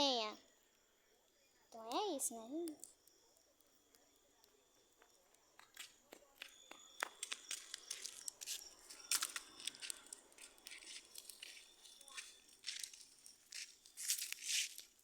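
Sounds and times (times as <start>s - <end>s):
dry leaves and twigs crunching: 7.2s - 15.0s.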